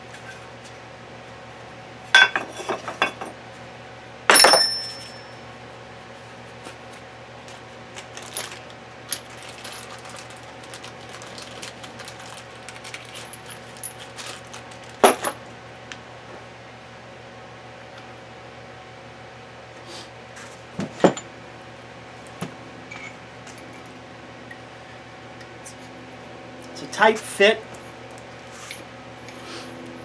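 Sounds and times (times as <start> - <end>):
metal clang: 4.3 - 5.2
small metal parts clinking: 4.3 - 5.3, 12.8 - 14.4.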